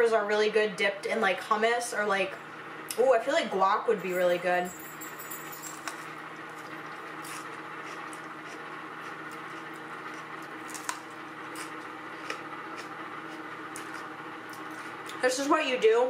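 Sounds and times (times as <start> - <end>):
chewing crisp pepper: 5.8 - 15.2.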